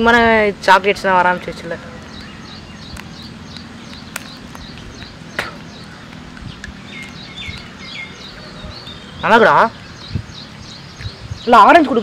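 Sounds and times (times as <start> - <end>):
outdoor background noise: 0.0 - 12.0
bird chirping: 0.7 - 12.0
sharp clicks: 2.0 - 8.3.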